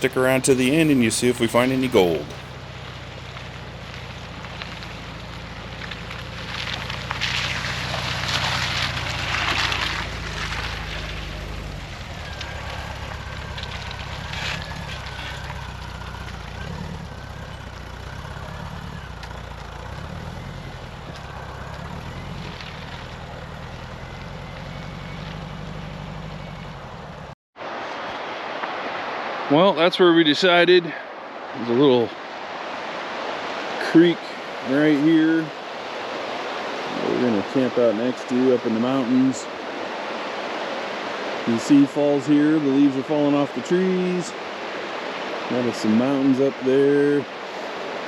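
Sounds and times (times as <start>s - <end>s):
van engine hum: 0.0s - 27.4s
road noise: 0.0s - 48.0s.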